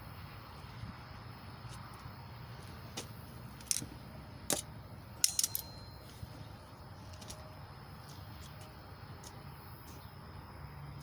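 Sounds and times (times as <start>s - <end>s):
low steady hum: 0.0s - 11.0s
sharp clicks and light clinks: 4.5s - 6.0s.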